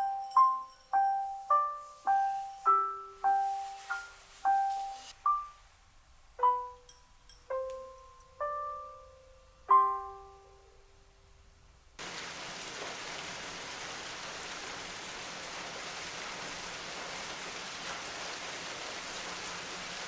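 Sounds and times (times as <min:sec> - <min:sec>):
raindrops ticking: 0:12.0 - 0:20.0
steady rain falling: 0:12.0 - 0:20.0.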